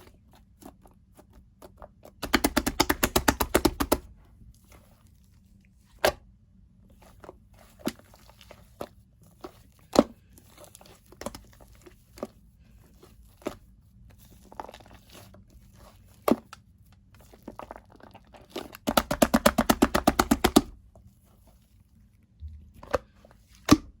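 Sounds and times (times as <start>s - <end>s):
rapid clicking pops: 2.2s - 4.0s, 18.9s - 20.7s.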